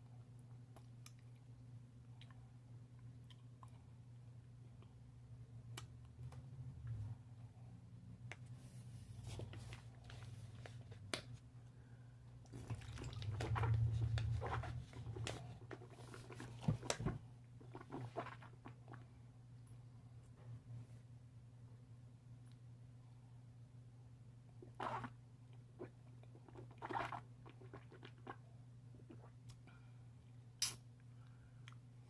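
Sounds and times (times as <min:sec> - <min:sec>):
low steady hum: 0:00.0 - 0:32.0
person chewing wetly: 0:00.7 - 0:02.4, 0:12.4 - 0:16.6, 0:24.8 - 0:28.4.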